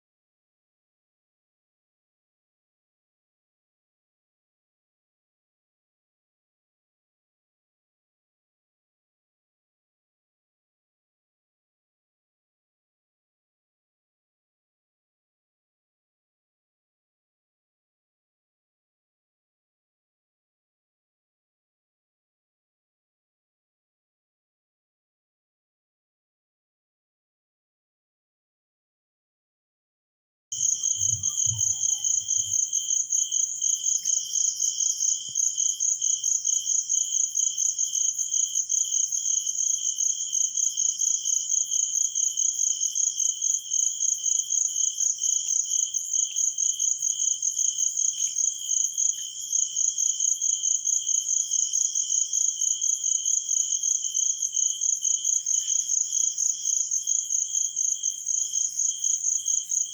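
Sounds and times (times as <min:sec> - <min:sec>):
insect chirping trill: 0:30.6 - 0:59.9.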